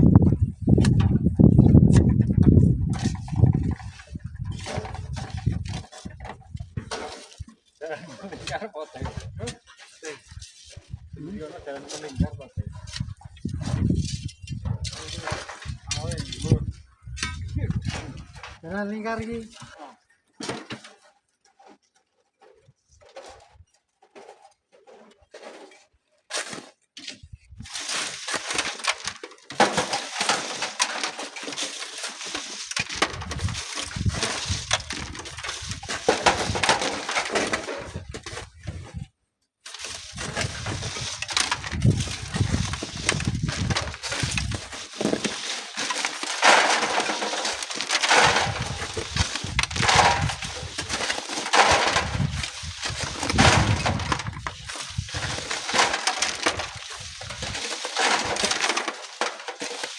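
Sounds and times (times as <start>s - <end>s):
wind buffeting microphone: 0.0s - 6.8s, 12.2s - 18.4s, 33.1s - 36.6s, 40.1s - 44.7s, 52.0s - 55.4s
sand and stones crunching: 26.4s - 59.9s.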